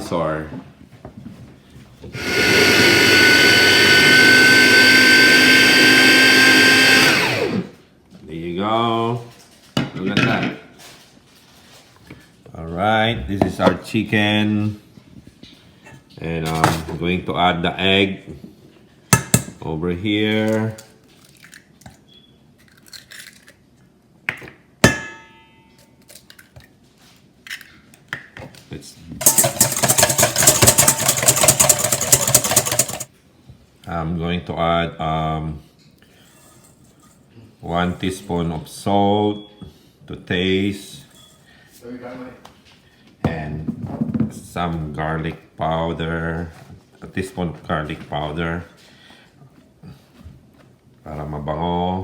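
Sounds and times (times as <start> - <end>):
food processor whining: 2.1 - 7.8, 29.2 - 33.1.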